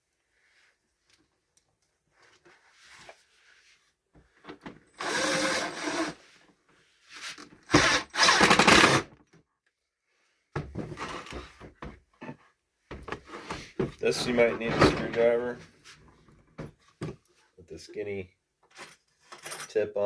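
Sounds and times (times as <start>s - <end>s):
power drill driving a screw: 5.0s - 6.2s, 7.7s - 9.1s.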